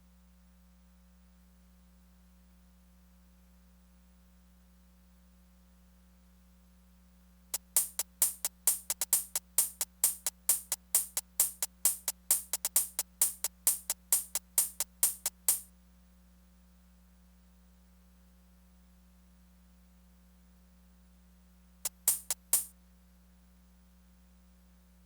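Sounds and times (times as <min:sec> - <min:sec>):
drum machine pattern: 0:07.6 - 0:15.7, 0:21.9 - 0:22.7.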